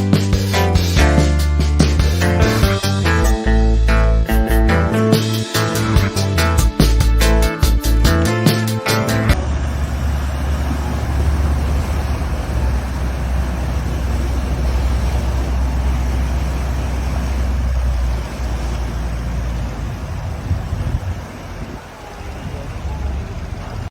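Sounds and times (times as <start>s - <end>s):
diesel engine low rumble: 0.0s - 8.4s, 9.0s - 23.9s
wind: 9.3s - 23.9s
water hissing: 9.7s - 23.9s.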